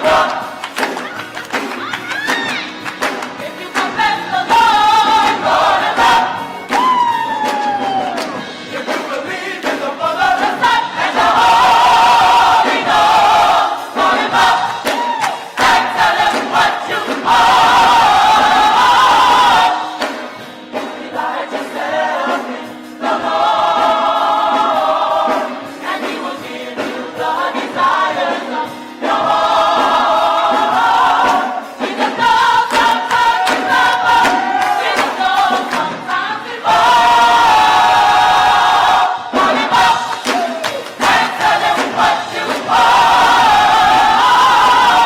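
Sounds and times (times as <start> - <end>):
gospel choir singing: 0.0 - 45.0.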